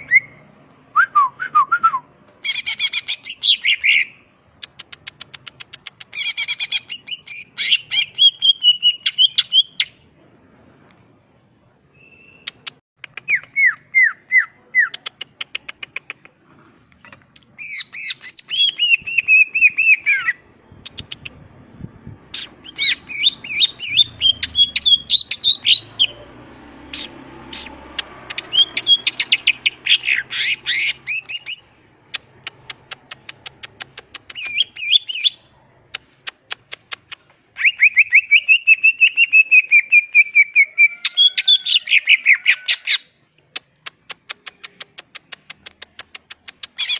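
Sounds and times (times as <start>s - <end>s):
bird singing: 11.9s - 12.6s, 22.3s - 26.3s, 26.9s - 31.7s.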